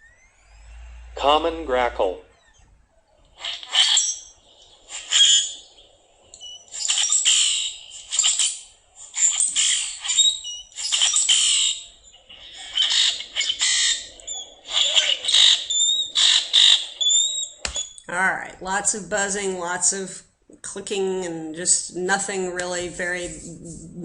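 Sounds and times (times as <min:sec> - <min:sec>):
grackle harsh squawks: 0:00.0 - 0:18.1
high whistled bird notes: 0:03.4 - 0:18.0.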